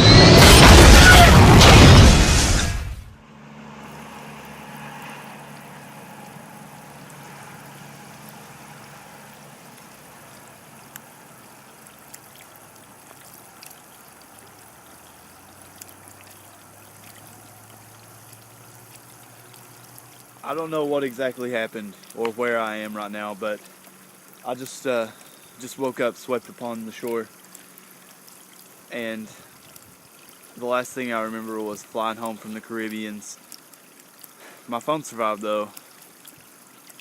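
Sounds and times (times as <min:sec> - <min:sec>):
low hum: 0:00.0 - 0:09.4
water lapping at shoreline: 0:03.7 - 0:37.0.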